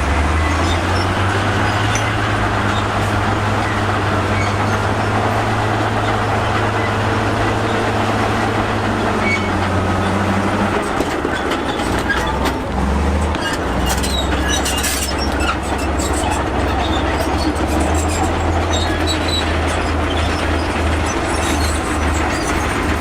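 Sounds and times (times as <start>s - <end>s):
diesel machinery engine running: 0.0s - 23.0s
metal and rock clanking: 0.0s - 23.0s.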